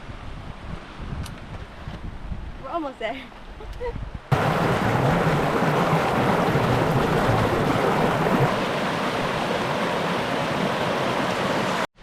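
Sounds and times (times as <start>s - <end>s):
creek water rushing: 4.3s - 11.9s.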